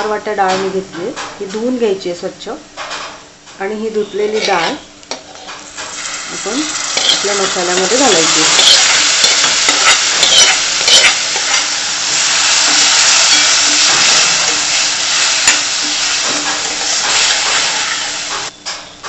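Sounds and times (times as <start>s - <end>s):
spoon scraping steel pan: 4.2s - 5.7s, 6.9s - 11.8s, 12.6s - 14.8s
lentils sizzling in hot oil: 4.2s - 18.5s.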